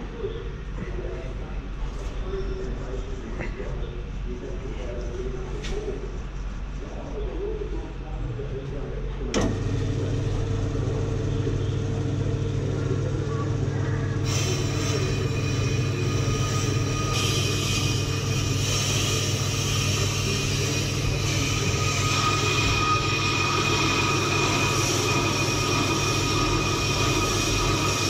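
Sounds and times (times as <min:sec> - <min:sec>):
brake lathe humming: 0:09.3 - 0:28.0
metal cutting squeal: 0:14.2 - 0:28.0.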